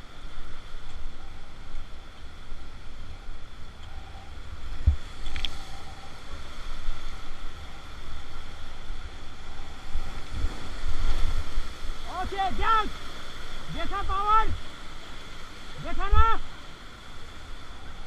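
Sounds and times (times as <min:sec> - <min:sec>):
river rapids rushing: 0:04.7 - 0:18.0.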